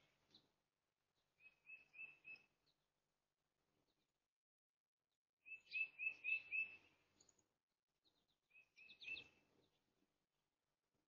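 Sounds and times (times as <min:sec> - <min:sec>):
songbird calling: 0:01.4 - 0:02.6, 0:05.4 - 0:07.4, 0:08.0 - 0:09.8.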